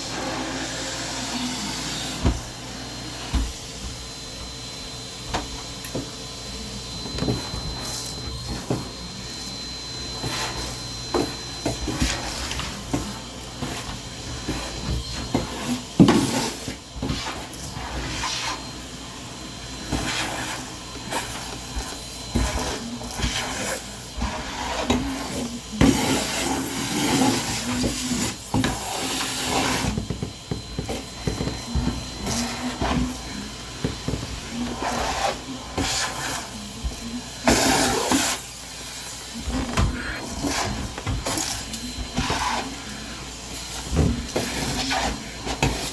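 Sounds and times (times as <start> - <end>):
household items knocking and rustling: 29.6 - 34.8, 39.4 - 42.6, 43.8 - 44.8.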